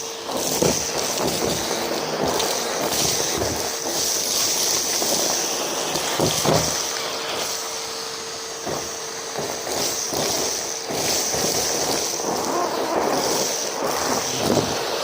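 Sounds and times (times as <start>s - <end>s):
vacuum cleaner running: 0.0s - 15.0s
debris crackling in vacuum: 8.6s - 15.0s.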